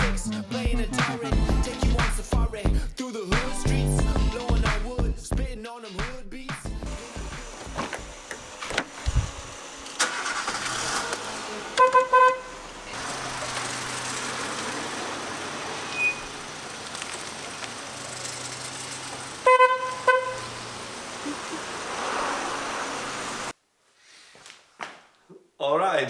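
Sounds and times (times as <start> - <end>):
engine and road noise: 6.8 - 23.6
car horn tooting: 11.8 - 12.6, 19.4 - 20.6.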